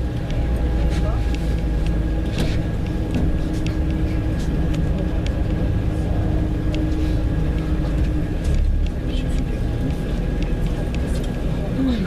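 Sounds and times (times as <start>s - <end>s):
constant hum: 0.0s - 12.0s
train clicks: 0.0s - 12.0s
train rumble: 0.0s - 12.0s.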